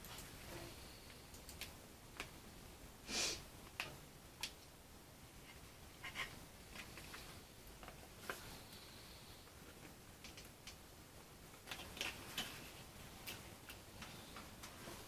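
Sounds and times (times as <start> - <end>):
hissing sniff: 3.1 - 3.5.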